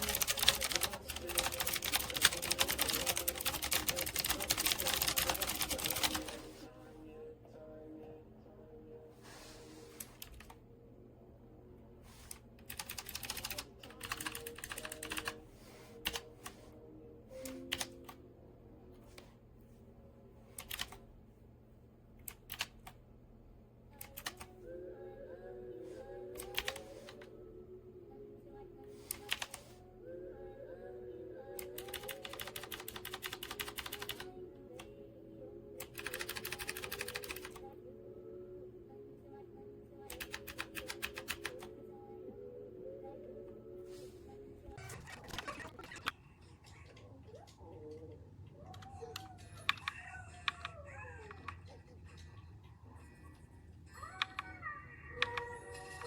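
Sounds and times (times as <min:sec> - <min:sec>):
mechanical keyboard typing: 0:00.0 - 0:06.4, 0:10.0 - 0:10.6, 0:12.3 - 0:15.4, 0:16.0 - 0:16.3, 0:17.4 - 0:18.2, 0:20.6 - 0:21.0, 0:22.2 - 0:23.0, 0:24.0 - 0:24.5, 0:26.4 - 0:27.3, 0:29.1 - 0:29.6, 0:31.6 - 0:34.3, 0:35.8 - 0:37.6, 0:40.1 - 0:41.7
background music: 0:00.0 - 0:21.0, 0:23.9 - 0:56.0.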